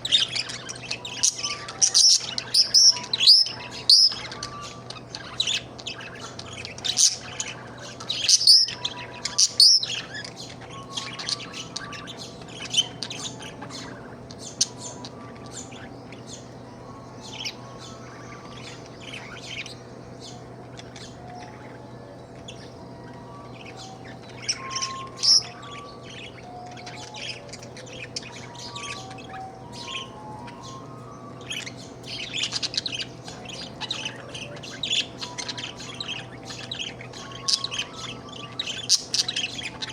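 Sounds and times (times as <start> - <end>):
budgerigar chirping: 0.0 - 39.9
steady low hum: 0.0 - 39.9.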